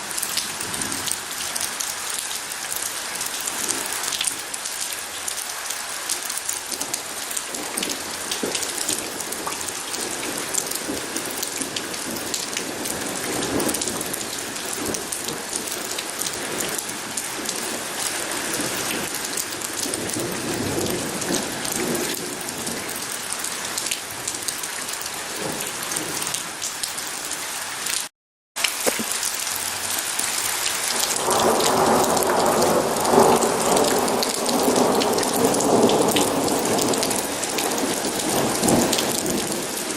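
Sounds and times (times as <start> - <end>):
steady rain: 0.0 - 39.9
thunder rumbling: 31.0 - 39.9.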